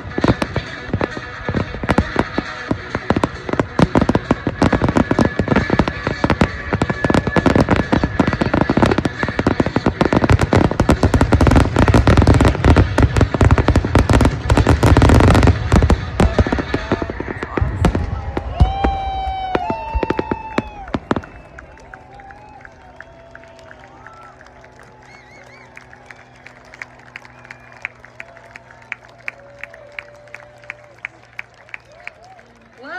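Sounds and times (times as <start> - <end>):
fireworks bangs: 0.0 - 31.2.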